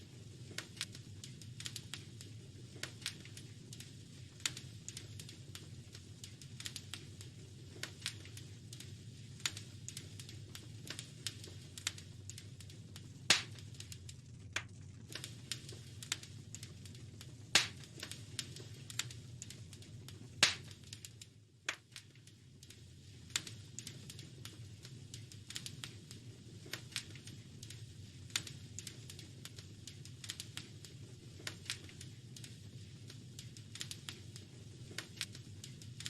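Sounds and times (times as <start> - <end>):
low rumble of fire: 0.0 - 36.0
wood fire crackling: 0.0 - 36.0
loud pops from fire: 0.1 - 36.0.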